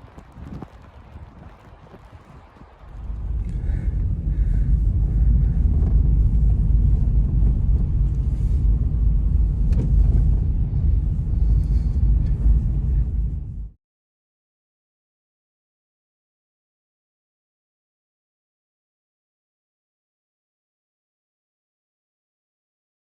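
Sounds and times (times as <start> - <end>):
blizzard wind buffeting microphone: 0.0 - 13.8.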